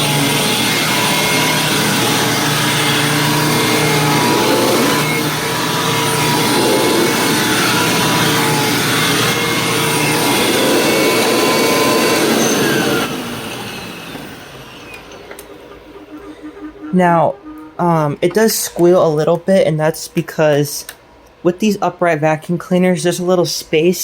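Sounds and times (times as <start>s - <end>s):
upright vacuum running: 0.0s - 18.9s
drive belt squeal: 0.0s - 19.0s
vacuum spinning down whine: 0.0s - 19.2s.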